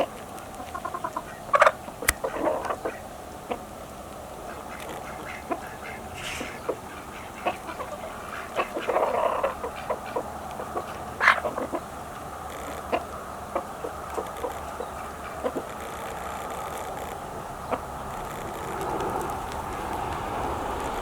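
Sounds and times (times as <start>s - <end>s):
ducks quacking: 0.4s - 16.5s
chicken clucks: 4.3s - 17.0s.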